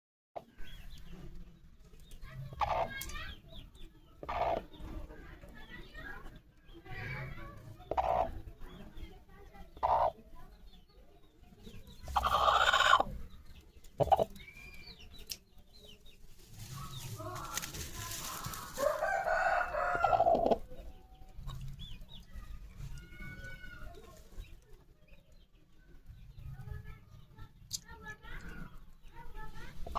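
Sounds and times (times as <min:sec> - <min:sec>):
soft clucking: 0:04.2 - 0:04.8, 0:07.9 - 0:08.5, 0:09.7 - 0:10.2, 0:12.0 - 0:14.4
rooster crowing: 0:18.8 - 0:20.4.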